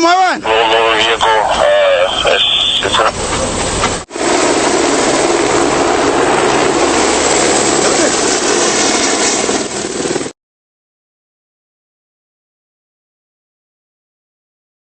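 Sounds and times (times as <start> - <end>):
helicopter cabin roar: 0.0 - 10.3.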